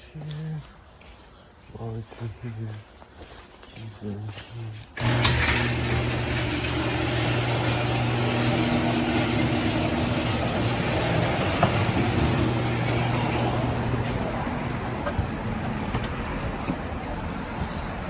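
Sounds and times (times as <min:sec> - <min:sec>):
vehicle engine hum: 0:08.4 - 0:18.0.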